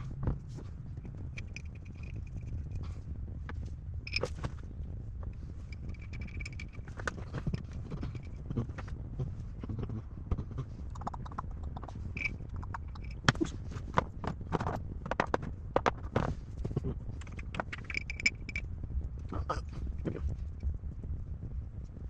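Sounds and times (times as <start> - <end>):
low steady rumble: 0.0 - 22.0
metal parts and tools clinking: 1.3 - 2.6, 4.1 - 4.6, 5.6 - 8.4, 12.2 - 13.4, 17.2 - 18.6.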